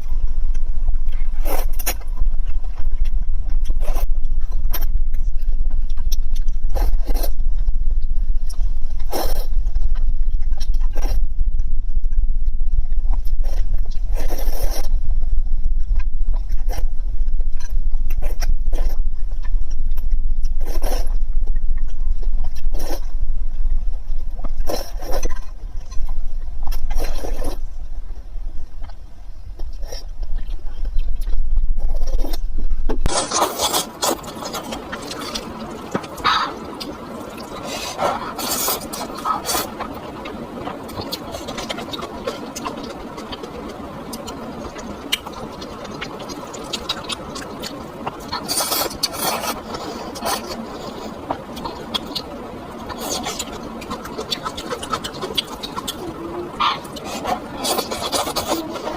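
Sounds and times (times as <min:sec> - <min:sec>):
steady low rumble: 0:00.0 - 0:58.9
wet mouth eating noises: 0:29.6 - 0:58.9.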